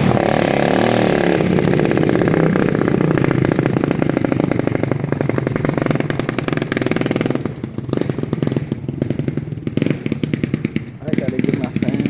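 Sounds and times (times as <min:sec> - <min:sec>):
motorcycle engine with open exhaust: 0:00.0 - 0:12.0.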